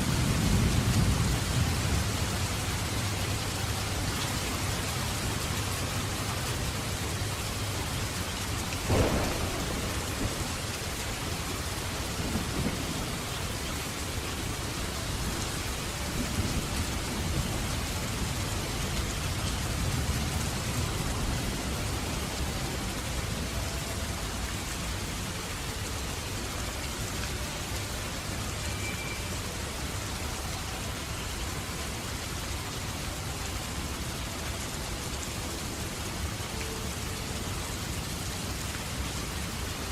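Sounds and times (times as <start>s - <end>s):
steady rain: 0.0s - 39.9s
thunder: 8.8s - 13.3s.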